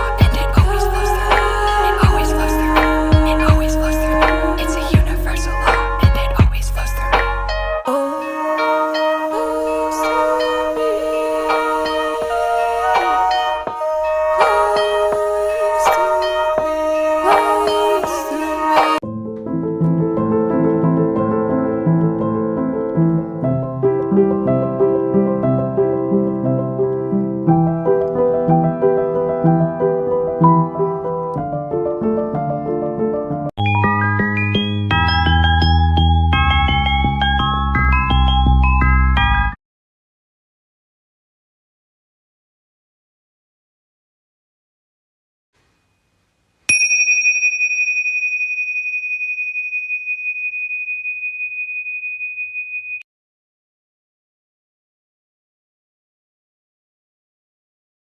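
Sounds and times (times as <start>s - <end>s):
slow piano notes: 7.2s - 33.5s
high bell-like tone ringing: 33.6s - 39.5s, 46.7s - 53.1s.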